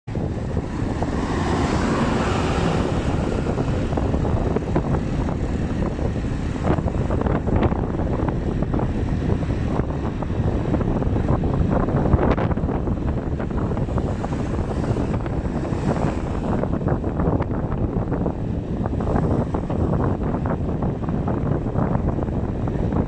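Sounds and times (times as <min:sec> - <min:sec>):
wind buffeting microphone: 0:00.1 - 0:23.0.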